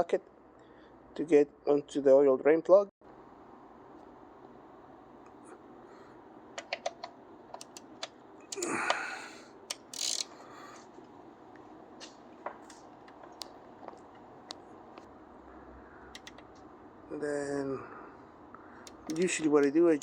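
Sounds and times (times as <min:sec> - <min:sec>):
metal wrench clicking and clinking: 0:09.7 - 0:10.3, 0:18.9 - 0:19.8.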